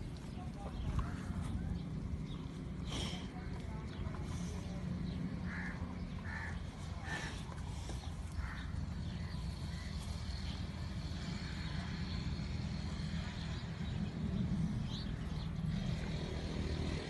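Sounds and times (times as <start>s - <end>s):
steady low rumble: 0.0s - 17.0s
harsh bird calls: 3.9s - 17.0s.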